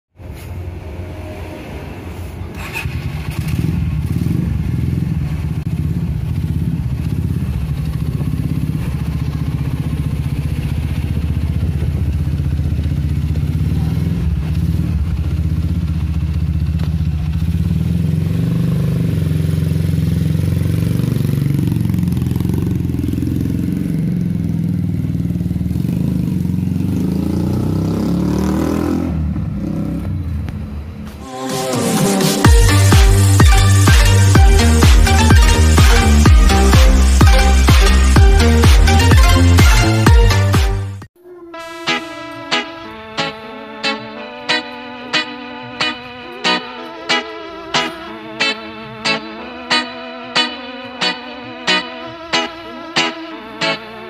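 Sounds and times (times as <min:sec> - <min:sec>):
motorcycle engine running: 0:02.5 - 0:31.1, 0:32.4 - 0:41.1.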